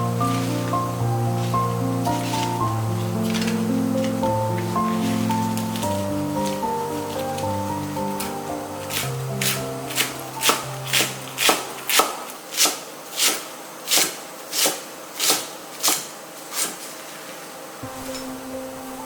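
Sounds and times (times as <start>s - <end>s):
soft background music: 0.0s - 11.9s, 17.8s - 19.0s
knife chopping on cutting board: 2.0s - 16.9s.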